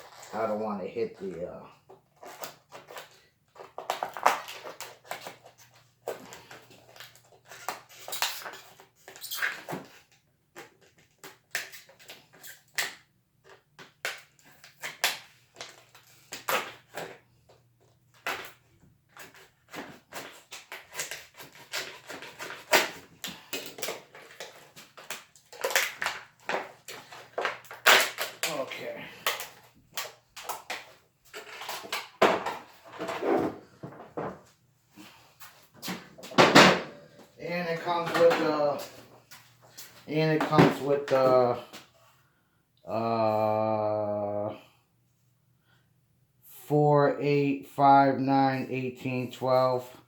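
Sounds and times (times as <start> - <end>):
packaging crinkling and tearing: 2.2 - 9.2, 19.2 - 32.1.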